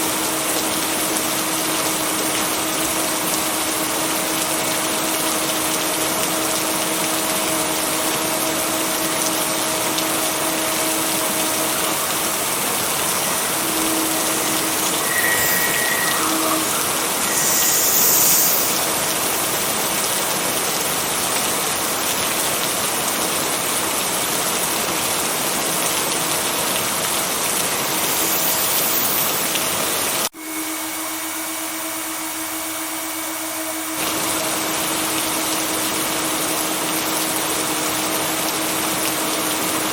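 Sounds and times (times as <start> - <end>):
steady rainfall: 0.0 - 30.3, 33.9 - 39.9
faint steady tones: 11.6 - 19.3.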